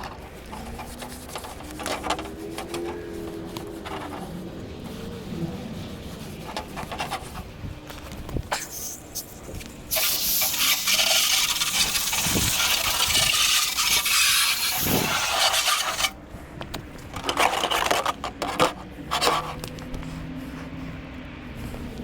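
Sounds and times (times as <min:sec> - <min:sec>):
harsh rubbing and scraping: 0:00.0 - 0:16.2, 0:17.0 - 0:22.0.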